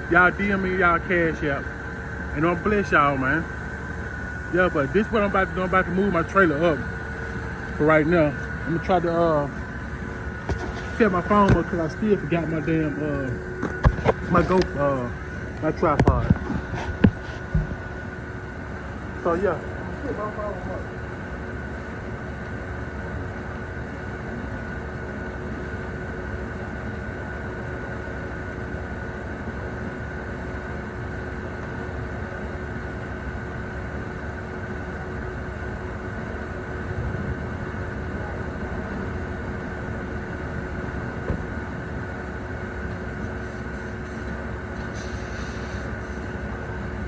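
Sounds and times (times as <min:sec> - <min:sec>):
heavy machinery rumbling: 0:00.0 - 0:47.0
machinery whine: 0:00.0 - 0:47.0
short hiss: 0:44.9 - 0:46.0.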